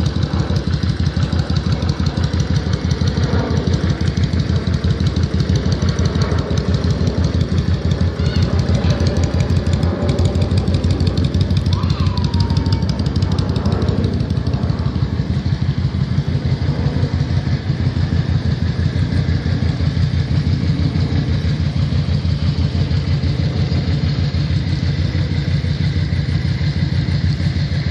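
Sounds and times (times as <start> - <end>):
motorcycle engine idling: 0.0 - 27.9.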